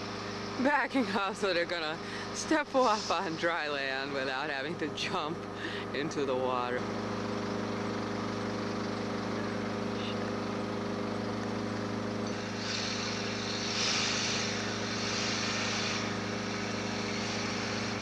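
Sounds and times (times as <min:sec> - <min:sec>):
loader engine droning: 0:00.0 - 0:18.0
hiss: 0:02.7 - 0:03.5, 0:12.3 - 0:18.0.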